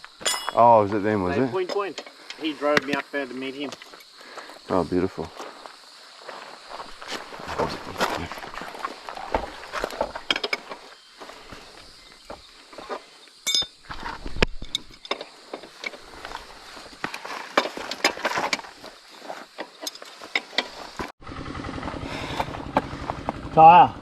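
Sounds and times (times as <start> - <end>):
hand tools clicking and knocking: 1.6 - 3.1, 9.3 - 10.9, 12.3 - 21.1
motorcycle engine idling: 21.2 - 24.0.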